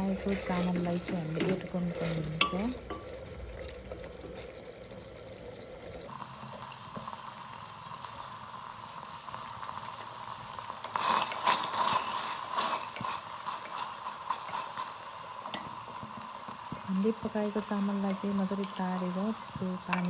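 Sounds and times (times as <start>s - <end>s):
clattering and stirring in pot: 0.0s - 4.7s, 10.8s - 16.9s
pot bubbling and hissing: 0.0s - 20.0s.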